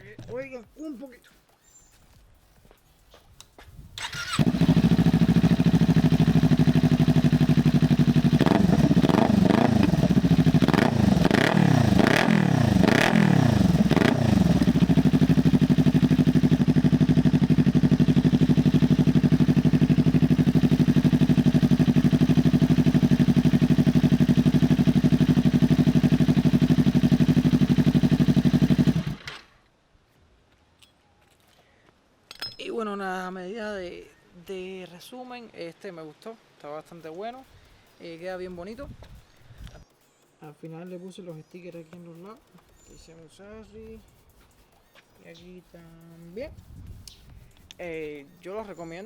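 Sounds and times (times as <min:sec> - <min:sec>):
motorcycle engine idling: 0:04.0 - 0:29.3
motorcycle engine revving: 0:04.0 - 0:29.5.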